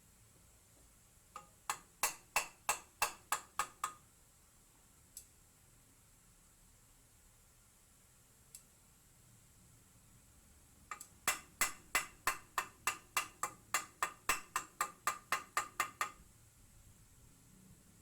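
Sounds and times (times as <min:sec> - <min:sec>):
sharp ringing knocks: 0:01.7 - 0:04.0, 0:11.3 - 0:16.2.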